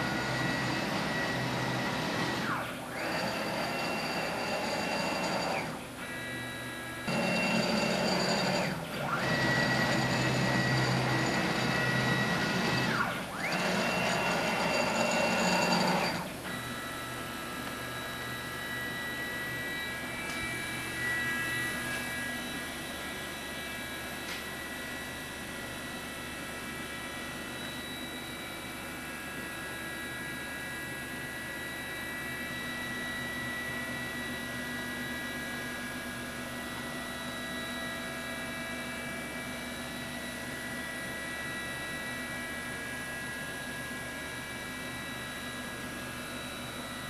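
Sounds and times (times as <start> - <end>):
router machine whine: 0.0 - 47.0.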